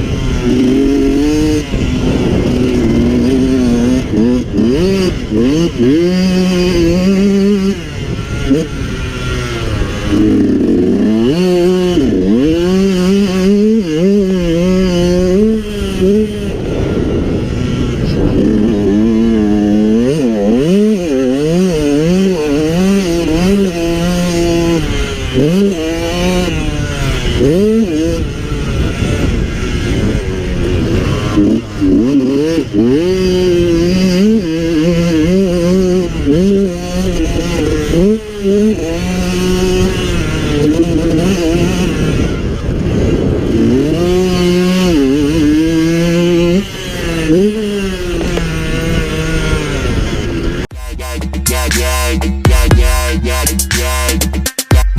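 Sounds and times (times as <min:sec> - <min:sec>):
two-stroke engine revving: 0:00.0 - 0:54.9.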